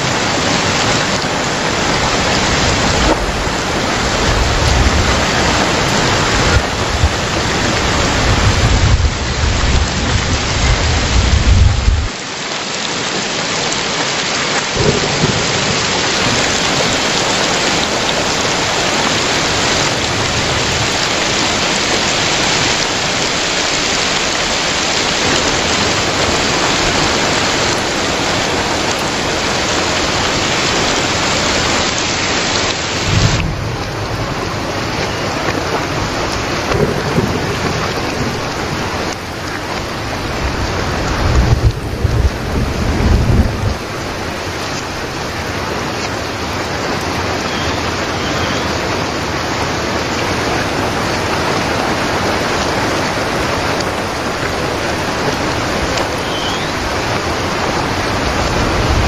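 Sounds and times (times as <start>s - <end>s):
low thunder rumbles: 0.0s - 12.1s, 14.8s - 31.8s, 32.9s - 45.8s, 49.9s - 59.0s
heavy rain splashing: 0.0s - 59.0s.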